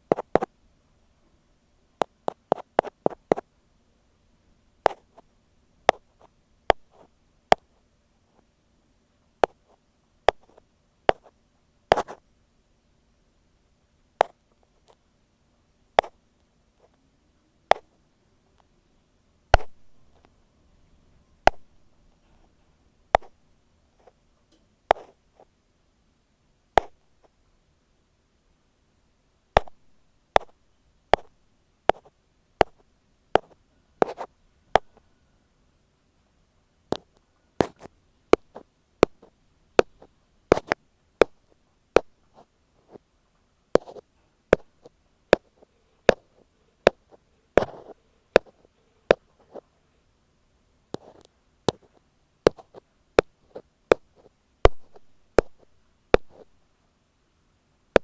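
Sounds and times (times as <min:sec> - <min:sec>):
ear pick tapping on microphone: 0:09.4 - 0:09.7, 0:19.5 - 0:20.3, 0:21.5 - 0:21.7, 0:23.1 - 0:23.4, 0:24.9 - 0:25.1, 0:29.6 - 0:31.3, 0:33.4 - 0:35.0, 0:36.9 - 0:42.2, 0:43.8 - 0:49.6, 0:51.0 - 0:56.5.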